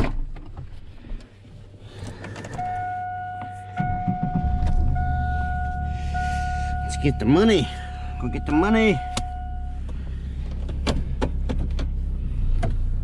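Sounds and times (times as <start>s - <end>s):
vehicle engine humming: 0.9s - 13.0s
steady electronic tone: 2.6s - 9.9s.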